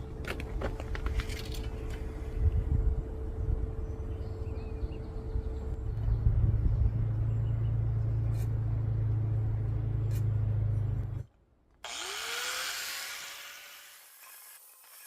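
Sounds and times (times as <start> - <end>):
power tool cutting steel: 11.8 - 15.0.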